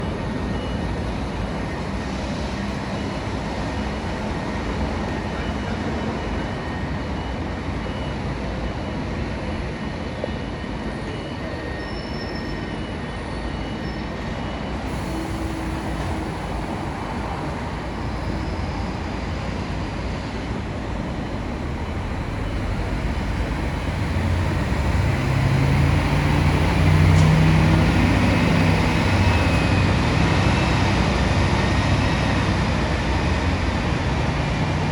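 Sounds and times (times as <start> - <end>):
diesel bus engine: 0.0 - 7.8, 14.8 - 34.9
road traffic noise: 14.8 - 34.9.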